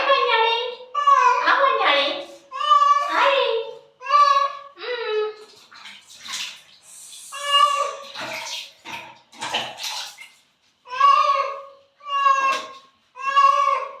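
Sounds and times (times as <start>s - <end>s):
water splashing and pouring: 5.4s - 10.5s
cat meowing loudly: 11.0s - 13.9s.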